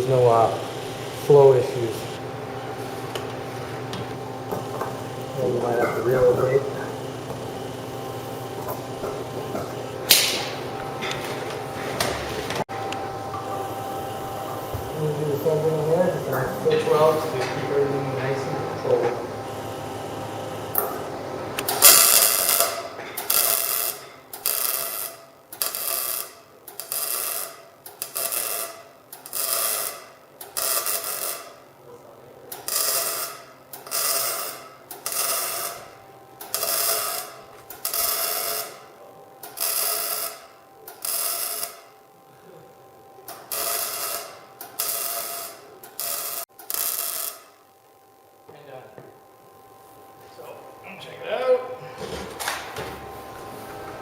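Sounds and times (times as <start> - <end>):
welder crackling bursts: 21.6 - 31.6, 32.5 - 38.8, 39.4 - 41.9, 43.2 - 47.6.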